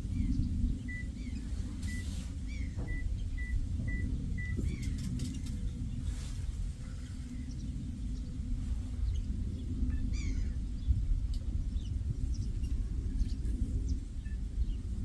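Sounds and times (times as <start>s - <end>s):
low wind rumble on microphone: 0.0s - 15.0s
short bird calls: 0.1s - 5.6s.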